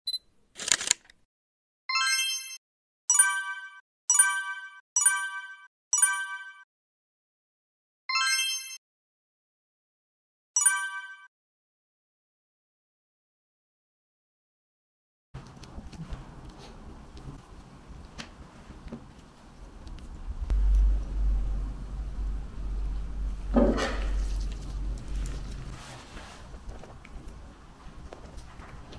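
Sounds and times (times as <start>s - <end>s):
bell-like dings: 1.9s - 6.7s, 10.6s - 11.3s
chime: 2.0s - 6.7s, 10.6s - 11.3s
steady low rumble: 19.6s - 25.8s.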